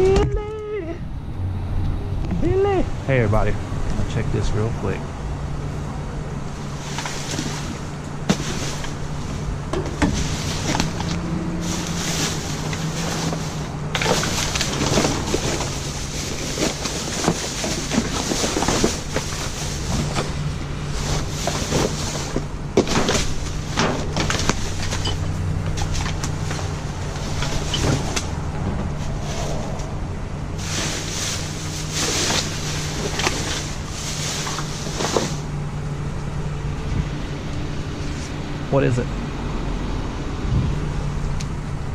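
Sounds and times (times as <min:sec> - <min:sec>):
steady low hum: 0:00.0 - 0:41.9
rustling of bags: 0:06.4 - 0:35.7.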